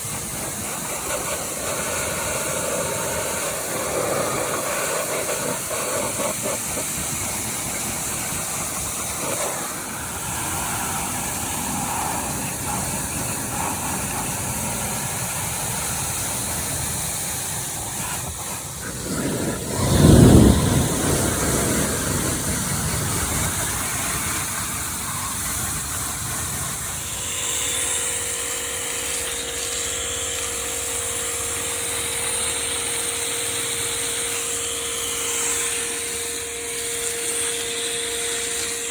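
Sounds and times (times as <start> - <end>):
motor hum: 0.0 - 38.9
pressure washer spraying water: 0.0 - 38.9.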